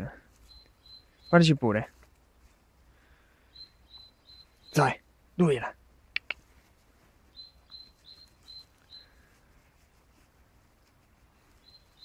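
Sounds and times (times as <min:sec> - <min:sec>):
small bird chirping: 0:00.0 - 0:02.1, 0:03.4 - 0:09.6, 0:11.1 - 0:12.0.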